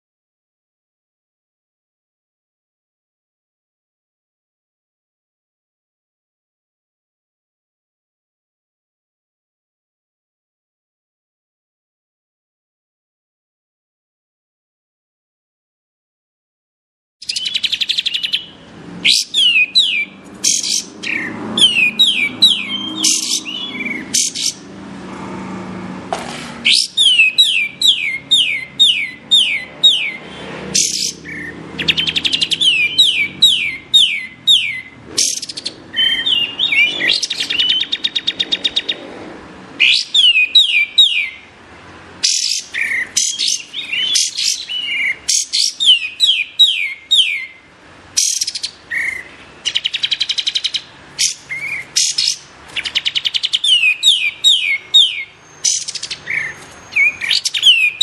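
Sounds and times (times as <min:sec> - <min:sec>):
fast rattling bird trill: 0:17.2 - 0:24.7, 0:26.6 - 0:39.0, 0:42.2 - 0:47.5, 0:48.2 - 0:58.0
songbird singing: 0:17.2 - 0:25.1, 0:26.6 - 0:58.0.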